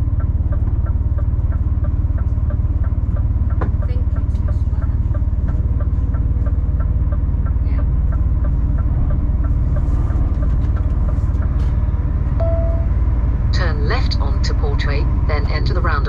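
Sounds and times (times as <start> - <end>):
lorry engine and road rumble: 0.0 - 16.0
short beep: 12.4 - 13.0.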